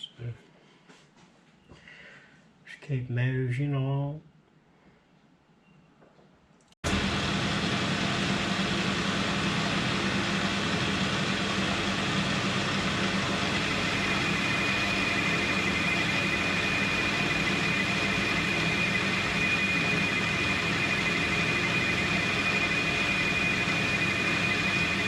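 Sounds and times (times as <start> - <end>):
metal lathe running and cutting: 6.9 - 25.0
thin high whine: 7.6 - 25.0.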